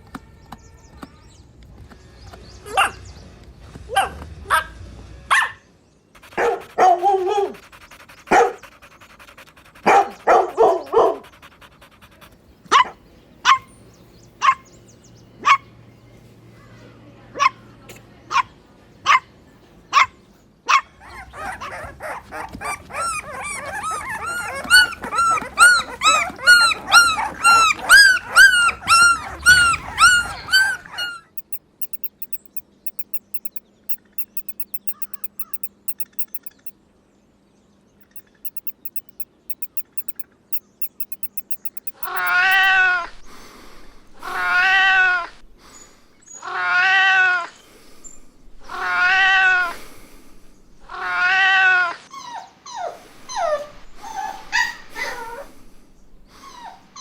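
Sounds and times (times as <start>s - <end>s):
dog barking: 6.4s - 7.6s.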